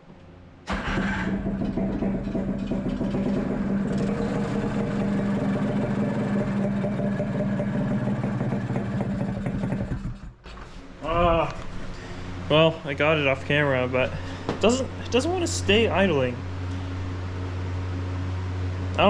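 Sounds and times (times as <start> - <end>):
two-stroke engine running: 0.7 - 10.4.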